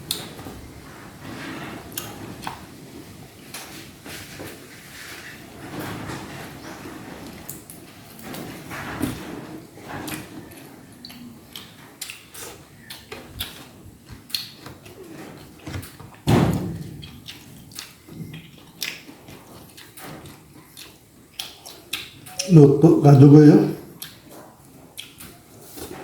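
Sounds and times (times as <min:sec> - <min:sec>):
person chewing food: 0:10.0 - 0:16.0, 0:17.0 - 0:22.5, 0:23.9 - 0:25.4.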